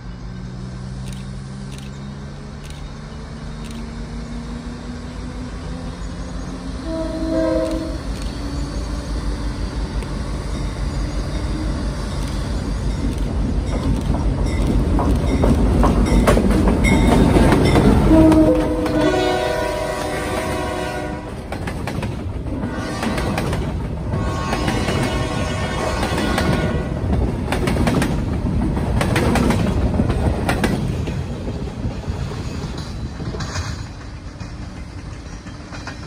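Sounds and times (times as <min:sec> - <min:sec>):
locomotive air horn: 0:06.8 - 0:08.2, 0:17.9 - 0:21.4, 0:22.6 - 0:27.0
train wheels clattering: 0:12.1 - 0:20.7, 0:21.4 - 0:36.0.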